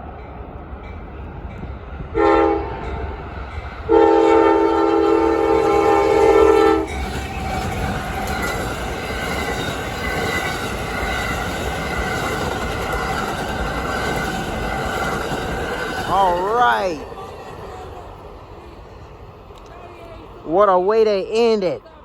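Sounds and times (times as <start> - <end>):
passing train rumble: 0.0 - 22.0
locomotive horn chord: 2.2 - 3.0, 3.9 - 6.9.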